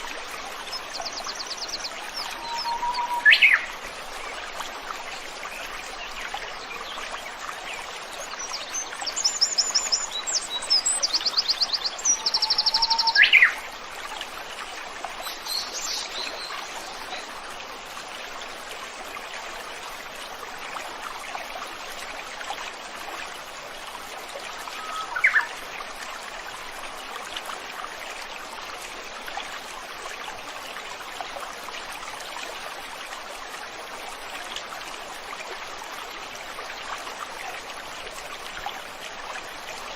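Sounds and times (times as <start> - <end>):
stream water flowing: 0.0 - 39.9
small birds calling: 24.8 - 25.5.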